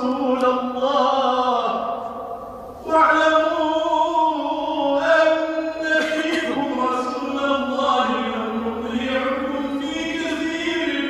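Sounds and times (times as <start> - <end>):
man chanting melodically: 0.0 - 11.0.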